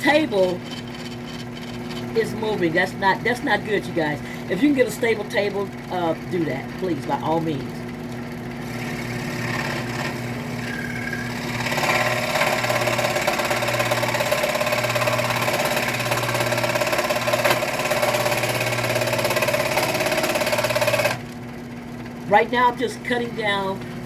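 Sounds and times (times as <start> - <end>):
scroll saw cutting wood: 0.0 - 3.6, 8.6 - 21.3.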